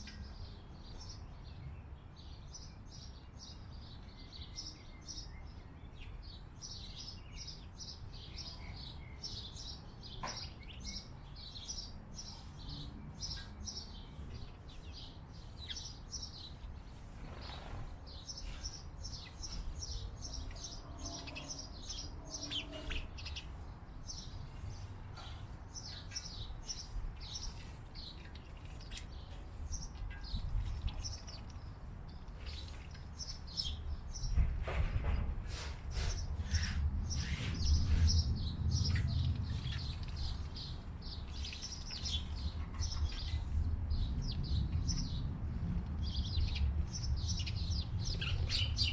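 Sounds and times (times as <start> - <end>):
small birds chirping: 0.0 - 48.9
steady low rumble: 36.4 - 48.9.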